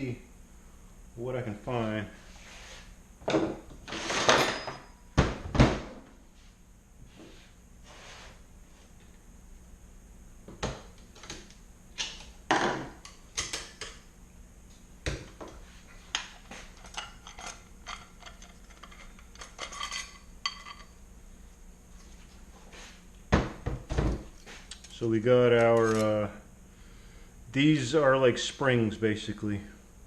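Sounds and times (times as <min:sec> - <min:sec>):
metal parts clinking and knocking: 0:16.8 - 0:20.9, 0:25.6 - 0:26.2.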